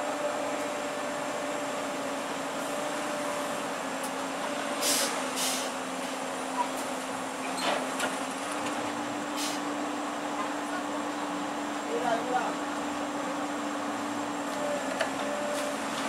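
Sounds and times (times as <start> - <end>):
heavy diesel machinery running: 0.0 - 16.0
air release hisses: 4.8 - 5.8.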